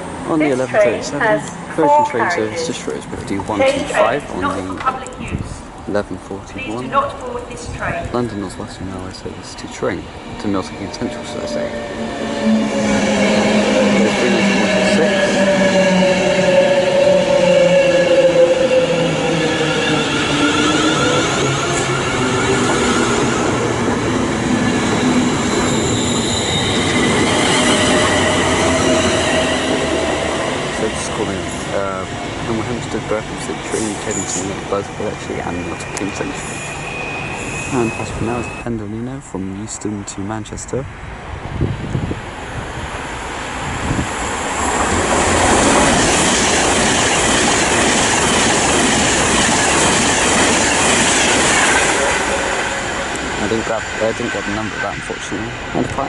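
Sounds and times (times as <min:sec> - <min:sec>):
train wheels rumbling on rail: 0:02.7 - 0:39.2, 0:40.7 - 0:56.0
wheel squeal and whine: 0:24.4 - 0:31.4, 0:35.5 - 0:38.6.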